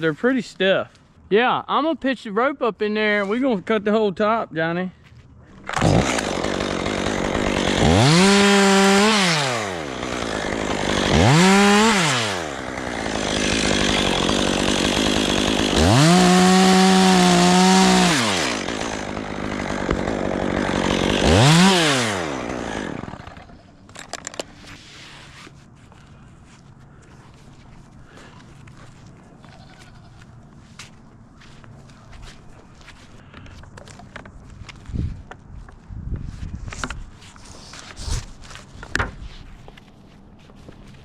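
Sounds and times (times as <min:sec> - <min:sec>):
chainsaw revving: 0:05.6 - 0:23.7.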